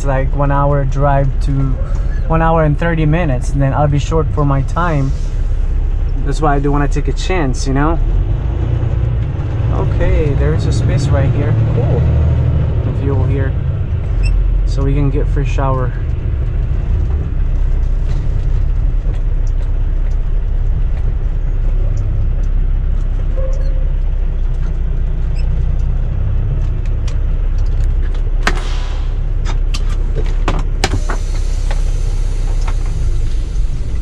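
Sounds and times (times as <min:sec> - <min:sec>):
diesel truck engine rumbling: 0:00.0 - 0:34.0
short hiss: 0:28.5 - 0:29.3.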